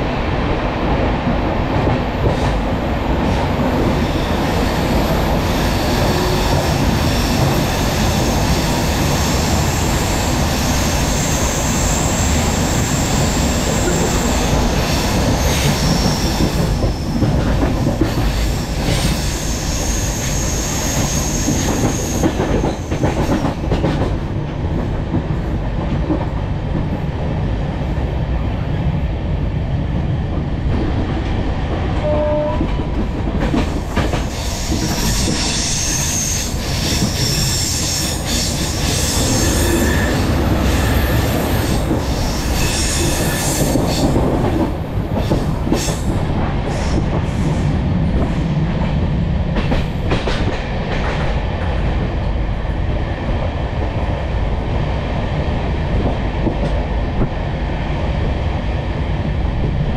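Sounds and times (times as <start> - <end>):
train wheels rumbling on track: 0.0 - 59.9
rail-joint clatter: 21.0 - 27.0, 31.8 - 52.0.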